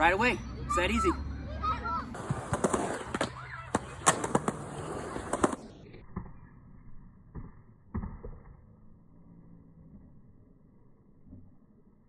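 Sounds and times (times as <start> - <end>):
skateboard rolling on concrete: 2.1 - 6.0
skateboard clacking on ramp: 2.2 - 5.6.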